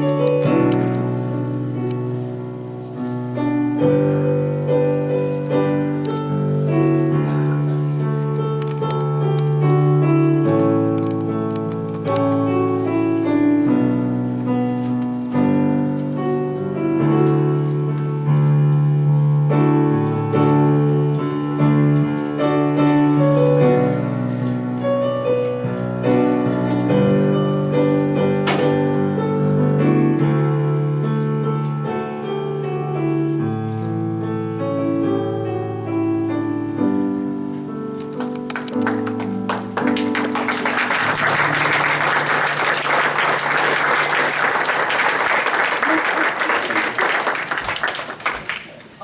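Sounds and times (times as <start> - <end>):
piano music: 0.0 - 48.3
audience applause: 38.5 - 48.9.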